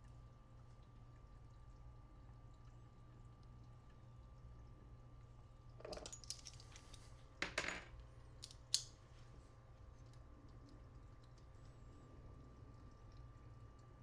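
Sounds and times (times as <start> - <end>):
faint steady hum: 0.0 - 14.0
metal parts clicking: 5.8 - 6.8
small metal tools rattling: 5.8 - 7.9.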